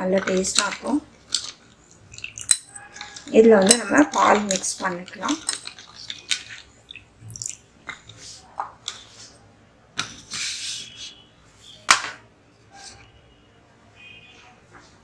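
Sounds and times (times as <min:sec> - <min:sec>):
utensils clinking against bowls: 0:00.0 - 0:07.6.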